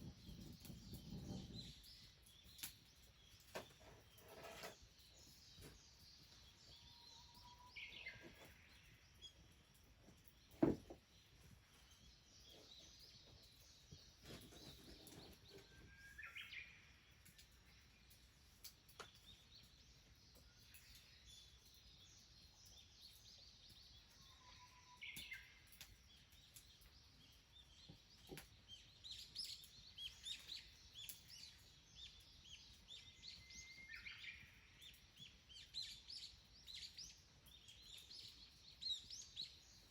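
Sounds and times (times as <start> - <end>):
countryside ambience: 0.0 - 39.9
dull thump: 10.6 - 11.0.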